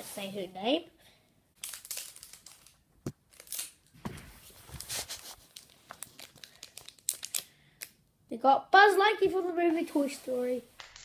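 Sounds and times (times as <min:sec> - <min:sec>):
wrapper tearing and crinkling: 0:01.6 - 0:03.9, 0:04.8 - 0:07.5.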